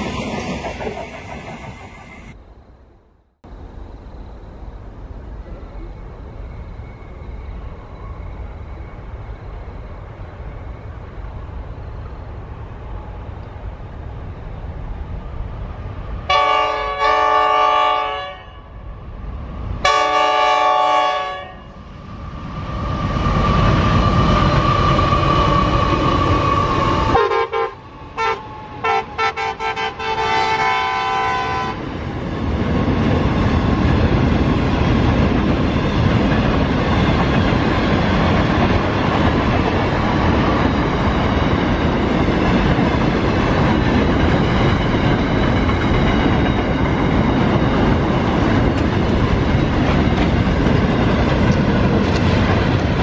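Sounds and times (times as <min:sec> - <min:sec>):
locomotive engine whine: 0:00.0 - 0:53.0
train horn blasts: 0:16.3 - 0:18.8, 0:19.8 - 0:21.7, 0:27.1 - 0:31.8.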